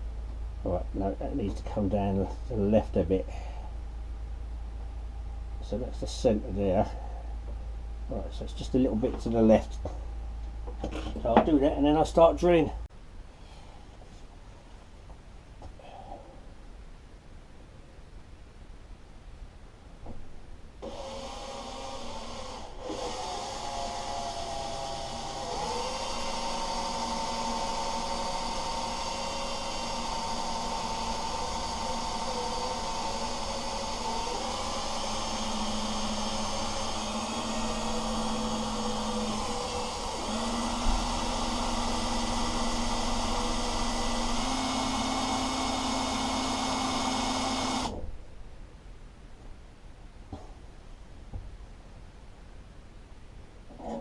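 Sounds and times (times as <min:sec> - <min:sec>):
electric drill boring through metal: 0:20.8 - 0:48.0.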